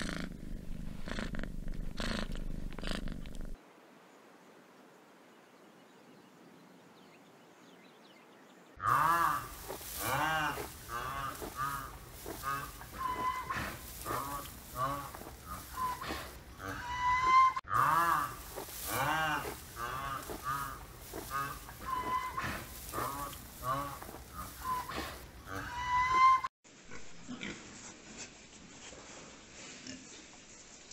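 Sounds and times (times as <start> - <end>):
rhinoceros squealing calls: 8.8 - 26.5.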